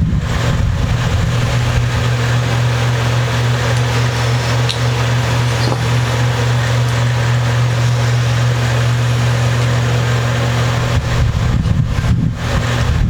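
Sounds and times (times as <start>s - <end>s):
low hum: 0.0s - 13.0s
constant hiss: 1.4s - 11.0s.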